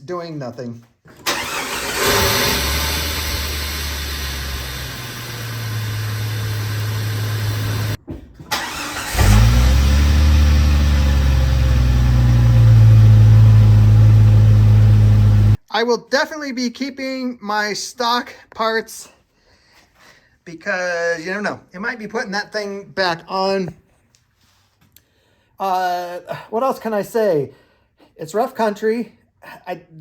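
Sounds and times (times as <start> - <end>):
car engine running: 1.3 - 15.6.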